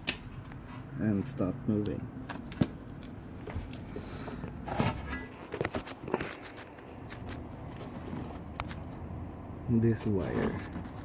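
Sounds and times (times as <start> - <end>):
scraping rustle: 4.6 - 8.6, 10.0 - 11.0.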